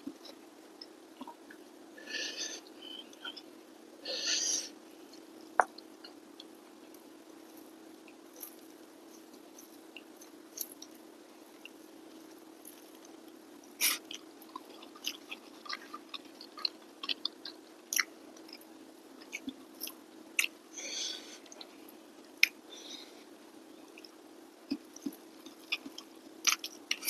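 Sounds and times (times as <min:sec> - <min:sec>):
steady low hum: 0:00.0 - 0:27.0
person chewing food: 0:08.2 - 0:20.6, 0:23.9 - 0:27.0.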